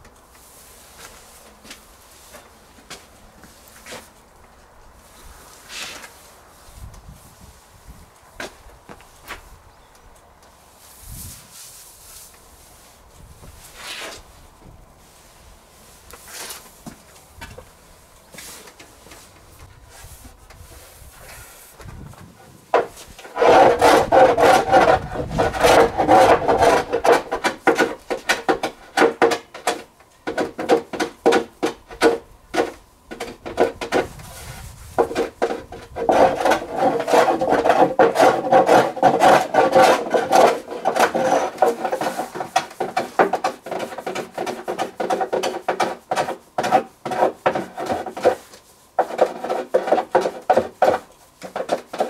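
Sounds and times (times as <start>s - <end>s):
hand tool rasping wood: 22.3s - 52.0s.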